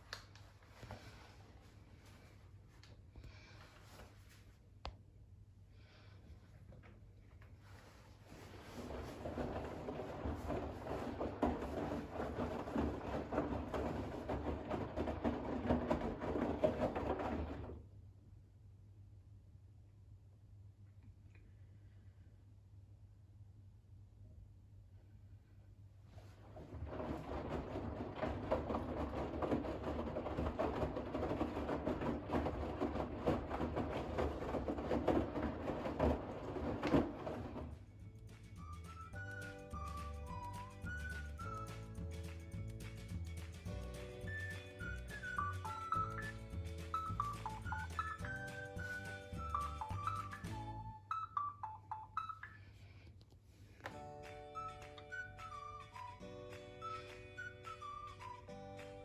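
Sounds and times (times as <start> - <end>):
faint low hum: 0.0 - 38.7
towels sloshing in washing machine drum: 7.8 - 17.9, 26.1 - 38.0, 44.3 - 50.8.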